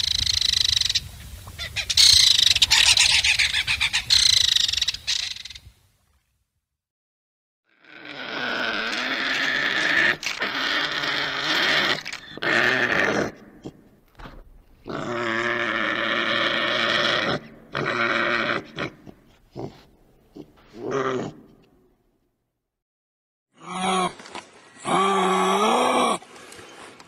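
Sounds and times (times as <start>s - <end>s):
badger growling: 7.7s - 13.9s, 14.8s - 21.6s.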